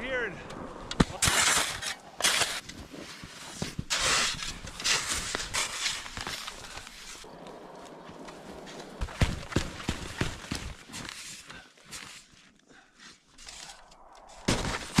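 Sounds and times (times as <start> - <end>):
footsteps crunching through snow: 1.6 - 12.4.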